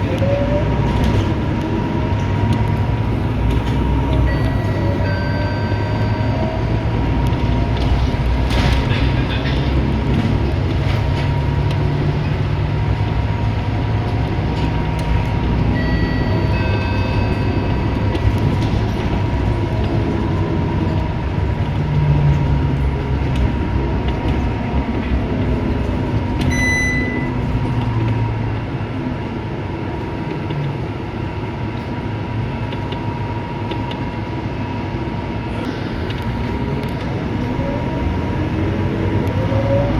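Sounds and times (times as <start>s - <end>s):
bus engine and road drone: 0.0s - 39.9s
short electronic tones: 26.5s - 27.4s.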